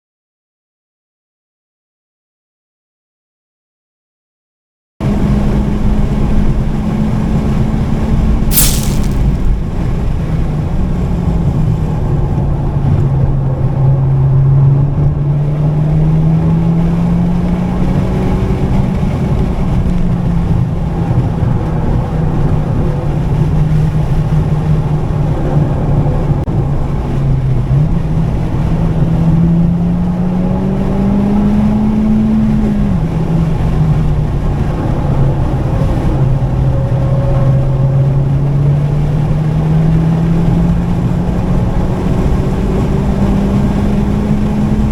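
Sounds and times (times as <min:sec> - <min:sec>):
road and wind noise: 0:05.0 - 0:44.9
car engine pulling hard: 0:09.5 - 0:44.9.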